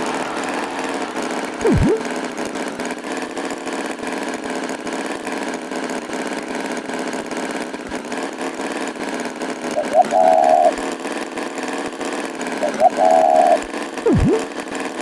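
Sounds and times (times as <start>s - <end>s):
cartoon tractor engine running: 0.0s - 10.9s, 12.3s - 14.7s
swooping pitch effect: 1.5s - 2.3s, 12.6s - 14.5s.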